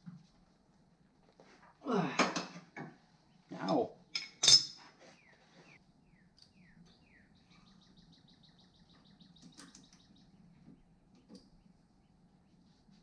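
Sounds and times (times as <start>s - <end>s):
faint bird chirps: 5.0s - 13.0s.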